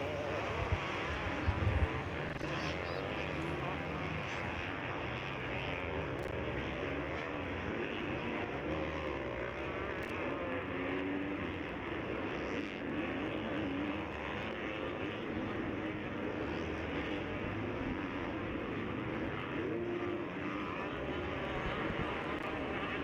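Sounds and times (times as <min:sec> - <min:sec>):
motocross engines revving: 0:00.0 - 0:04.4.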